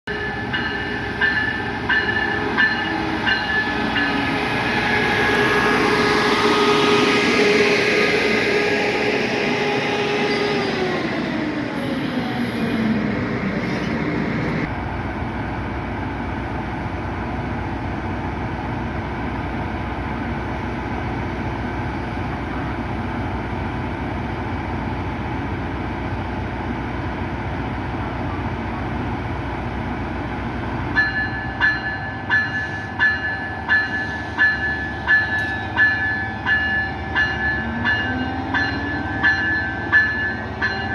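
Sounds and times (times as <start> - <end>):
train whine sliding down: 0.1 - 15.1
train rumble: 0.1 - 40.9
train wheel clacks: 31.0 - 40.9.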